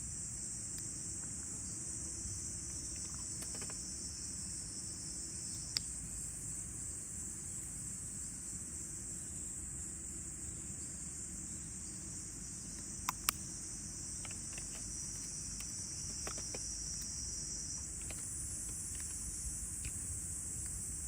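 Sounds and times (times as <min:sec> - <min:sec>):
faint ticks: 0:05.4 - 0:06.0, 0:12.7 - 0:20.8
insects shrilling: 0:12.5 - 0:21.0
sharp snaps: 0:12.8 - 0:13.5.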